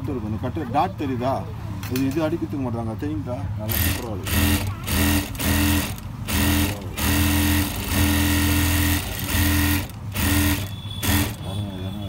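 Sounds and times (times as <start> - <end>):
sewing machine stitching: 3.7 - 11.4.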